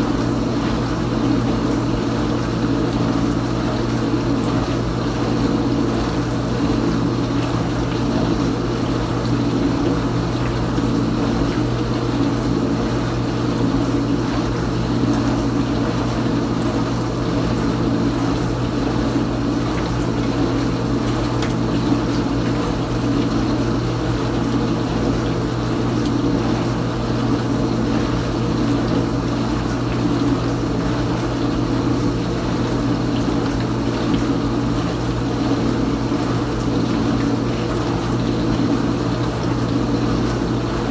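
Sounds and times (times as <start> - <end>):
dishwasher motor hum: 0.0 - 40.9.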